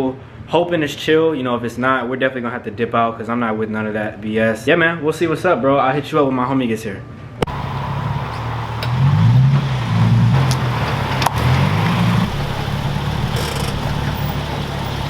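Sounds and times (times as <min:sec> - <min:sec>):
car engine revving and idling: 0:07.5 - 0:15.0.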